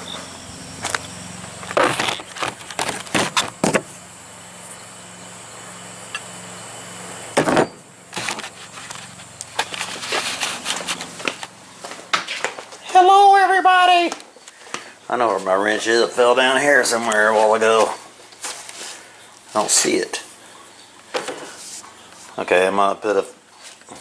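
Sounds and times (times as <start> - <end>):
knocks and rattles of tools: 0.8 - 3.9.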